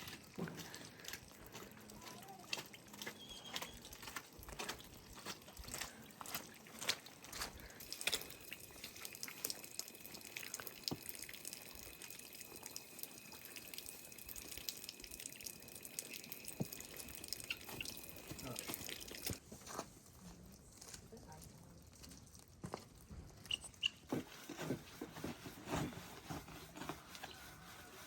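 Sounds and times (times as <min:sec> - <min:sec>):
water dripping: 0:00.0 - 0:19.4.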